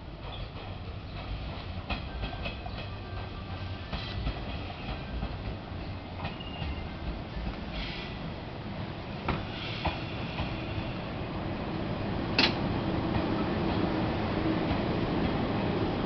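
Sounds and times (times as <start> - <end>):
electric train rumbling: 0.0 - 16.0
train wheels clacking on rail joints: 0.2 - 8.1.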